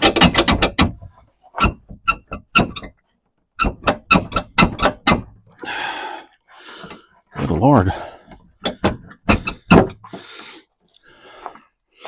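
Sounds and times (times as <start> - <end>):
sharp knocks and clicks: 0.0 - 3.0, 3.6 - 5.5, 8.3 - 10.2.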